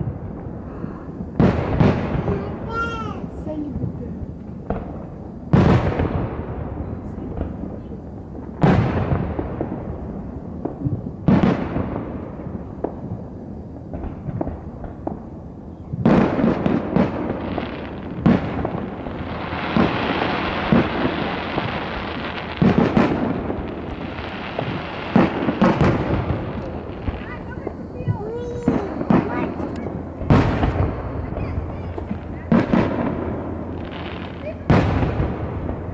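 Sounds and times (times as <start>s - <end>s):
firework crackling: 0.0s - 35.9s
firework shells booming: 0.0s - 35.9s.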